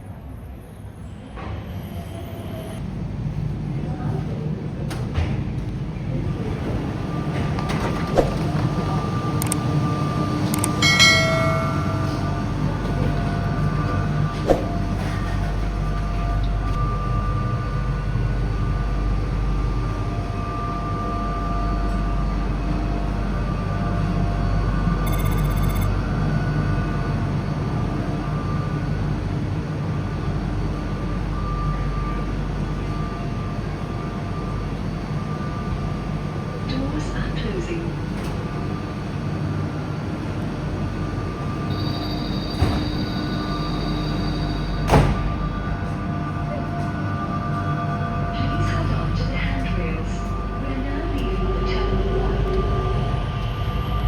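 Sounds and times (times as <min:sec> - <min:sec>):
train rumble and hum: 0:00.0 - 0:54.0
people mover rumbling: 0:11.0 - 0:16.9
whine-like tone: 0:40.9 - 0:54.0.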